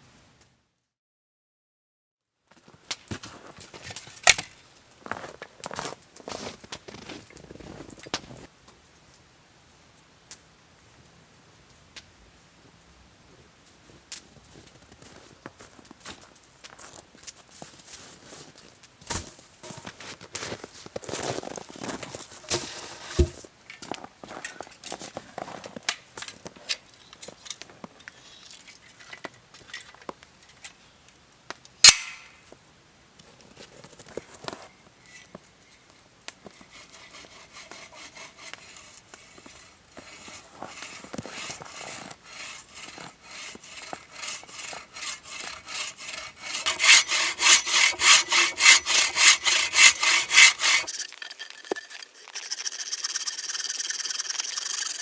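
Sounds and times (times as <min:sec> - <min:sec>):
hand saw cutting wood: 0:36.4 - 0:55.0.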